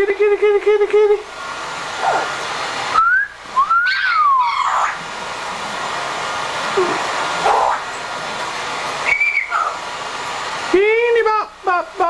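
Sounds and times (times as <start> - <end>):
parrot whistling: 3.0 - 5.0, 7.4 - 7.9, 9.0 - 9.8
parrot short calls: 3.8 - 5.0.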